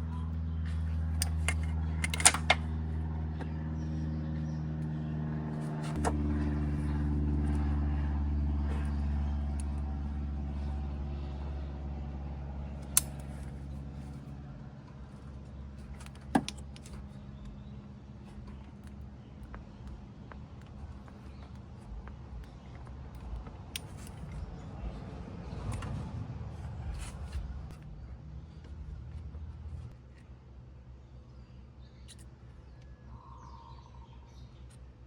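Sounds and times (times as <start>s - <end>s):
scooter engine idling: 0.0s - 29.8s
sharp clicks and knocks: 15.9s - 17.6s.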